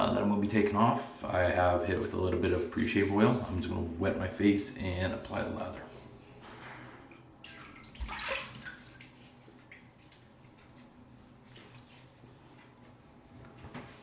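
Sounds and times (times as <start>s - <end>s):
water splashing on face: 7.4s - 10.9s.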